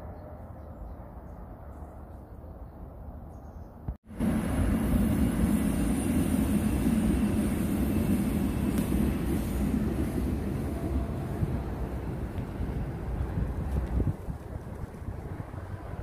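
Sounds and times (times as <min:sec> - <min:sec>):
train rumbling past: 0:04.1 - 0:16.0.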